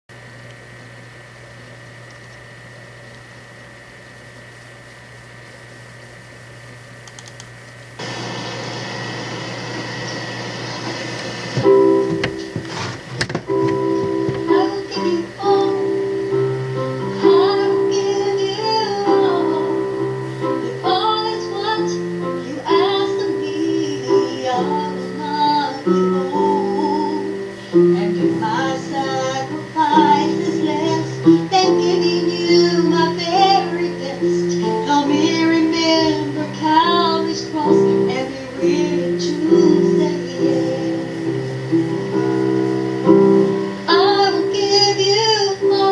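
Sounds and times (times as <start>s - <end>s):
instrumental backing: 11.6s - 45.9s
woman singing: 14.1s - 41.4s, 43.8s - 45.9s.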